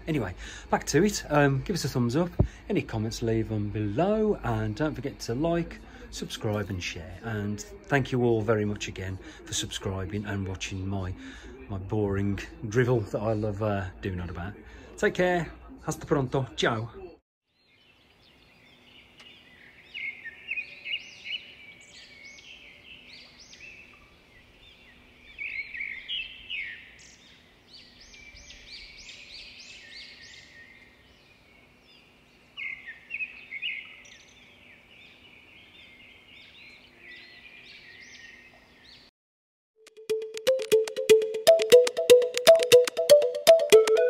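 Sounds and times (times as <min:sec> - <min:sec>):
small birds chirping: 0:17.5 - 0:39.1.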